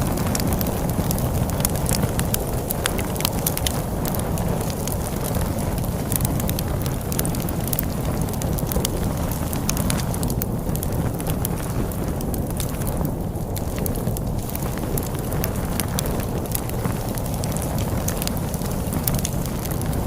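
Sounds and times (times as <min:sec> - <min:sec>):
storm wind rumble: 0:00.0 - 0:20.0
wood fire crackling and popping: 0:00.0 - 0:20.0.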